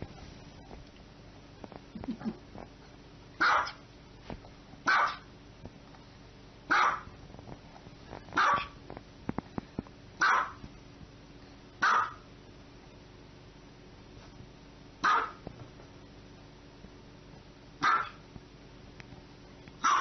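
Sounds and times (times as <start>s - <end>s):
small dog barking: 3.4s - 3.8s, 4.8s - 5.3s, 6.7s - 7.1s, 8.4s - 8.8s, 10.2s - 10.6s, 11.8s - 12.3s, 15.0s - 15.4s, 17.8s - 18.2s, 19.8s - 20.0s.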